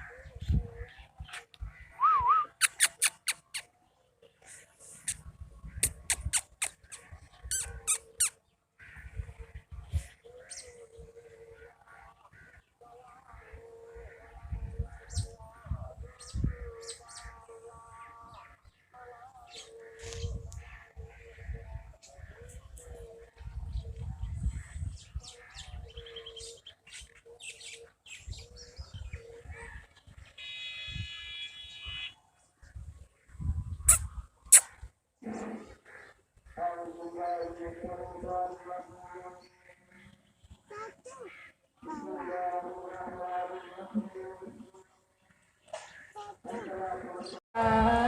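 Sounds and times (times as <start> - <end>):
birds chirping: 0.0 - 47.4.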